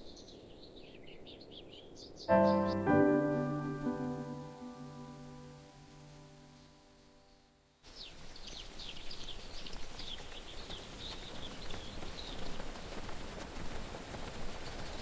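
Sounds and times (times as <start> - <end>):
high bird chirps: 0.0 - 5.2
rain-like hiss: 0.0 - 15.0
music: 2.3 - 7.7.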